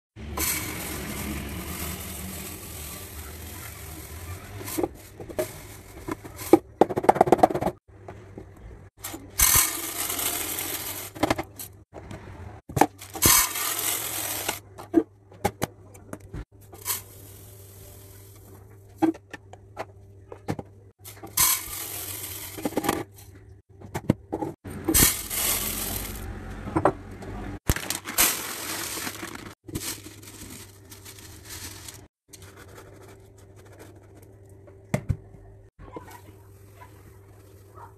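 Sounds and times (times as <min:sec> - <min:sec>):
dry food pouring into containers: 0:00.2 - 0:06.5, 0:09.0 - 0:11.3, 0:12.9 - 0:14.6, 0:21.1 - 0:23.0, 0:24.9 - 0:26.4, 0:27.6 - 0:33.1
plastic containers clicking and knocking: 0:04.6 - 0:08.6.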